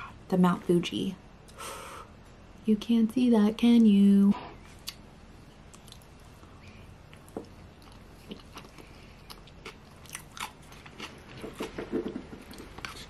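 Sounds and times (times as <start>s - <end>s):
person chewing food: 4.7s - 13.0s.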